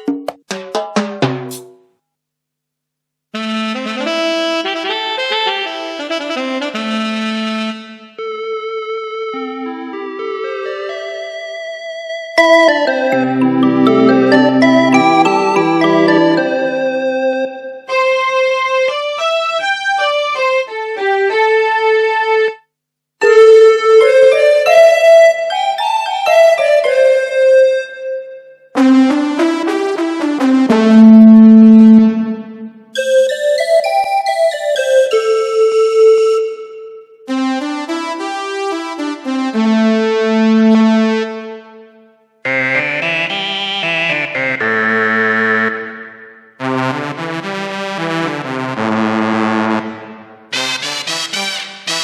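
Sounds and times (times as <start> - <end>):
keyboard overlapping notes: 3.4 - 22.6, 23.2 - 52.0
keyboard single-note melody: 7.6 - 22.4, 30.6 - 46.7.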